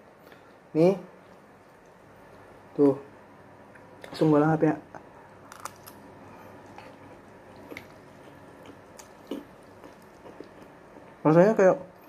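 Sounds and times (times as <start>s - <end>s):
wet chewing of food: 5.4s - 11.2s.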